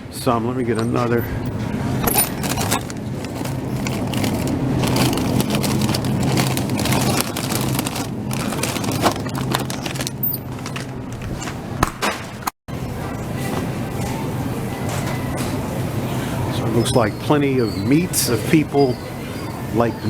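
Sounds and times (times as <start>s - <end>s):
clicks and rattles: 2.0s - 12.5s.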